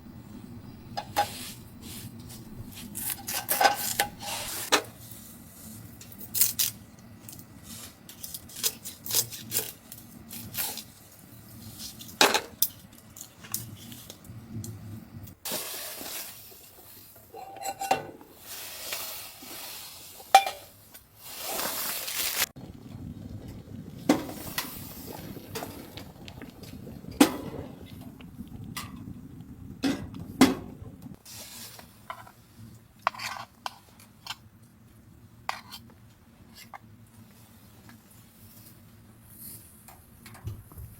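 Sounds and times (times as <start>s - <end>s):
metal cookware knocking and clinking: 17.4s - 18.2s, 20.4s - 20.7s.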